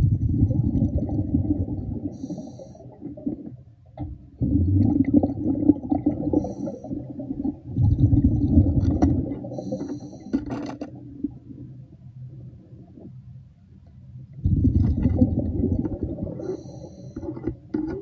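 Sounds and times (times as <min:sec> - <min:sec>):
underwater exhaled air bubbling: 0:00.0 - 0:13.2, 0:14.4 - 0:18.0
breathing in hiss: 0:02.1 - 0:02.9, 0:06.4 - 0:07.0, 0:09.5 - 0:10.4, 0:16.4 - 0:17.4.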